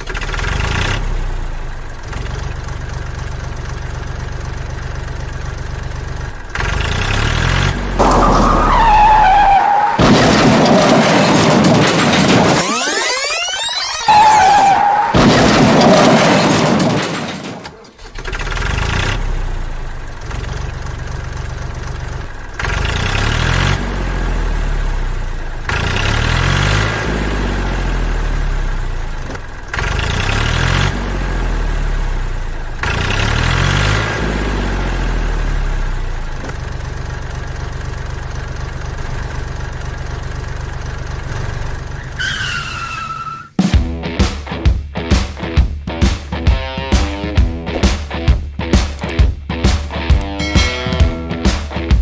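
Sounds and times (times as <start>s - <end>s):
vehicle engine revving and idling: 0.0s - 12.6s, 15.2s - 42.6s.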